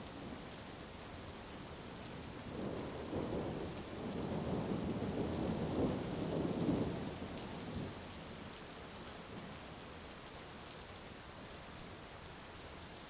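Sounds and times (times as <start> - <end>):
heavy rain: 0.0 - 13.0
thunder rumbling: 2.5 - 7.1.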